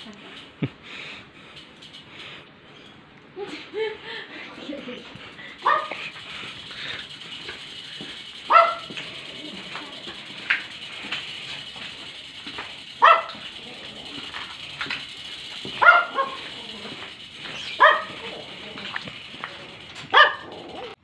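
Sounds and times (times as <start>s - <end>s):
dog barking: 5.6s - 6.0s, 8.5s - 9.0s, 13.0s - 13.4s, 15.8s - 16.6s, 17.7s - 18.5s, 20.1s - 20.6s.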